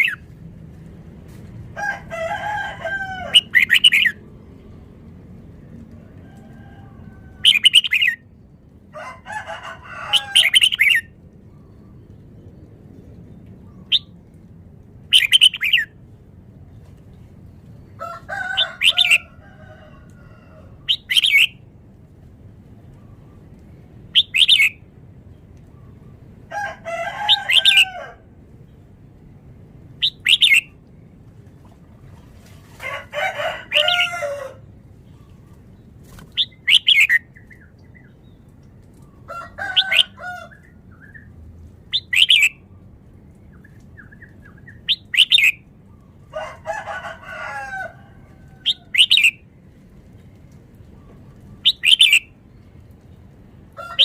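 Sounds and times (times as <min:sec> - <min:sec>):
bulbul whistled song: 0:36.4 - 0:37.7, 0:43.5 - 0:45.6, 0:51.6 - 0:52.4.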